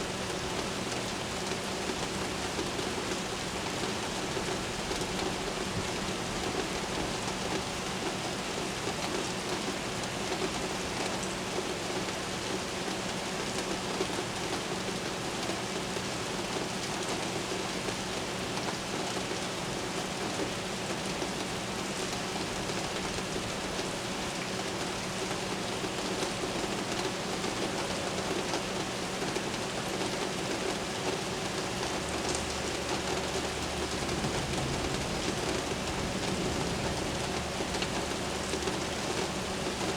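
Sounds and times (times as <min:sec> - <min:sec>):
heavy rain on hard surfaces: 0:00.0 - 0:39.9
low thunder rumble: 0:33.8 - 0:39.3
thunder crack: 0:34.1 - 0:38.0.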